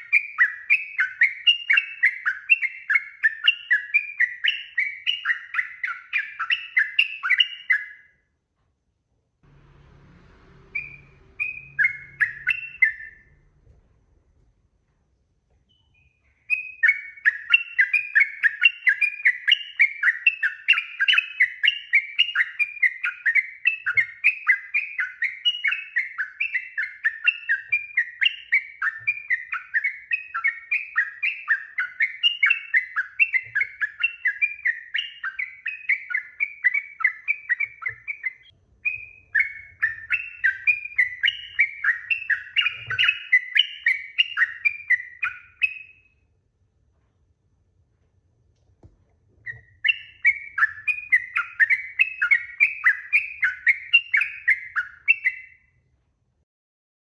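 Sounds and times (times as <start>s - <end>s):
bulbul singing chattering notes: 10.6s - 13.4s.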